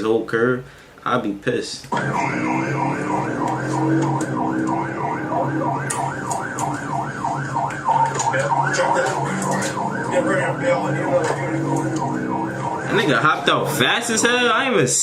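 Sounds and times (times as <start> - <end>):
police siren yelping: 1.9 - 14.4
low steady drone: 2.0 - 13.2.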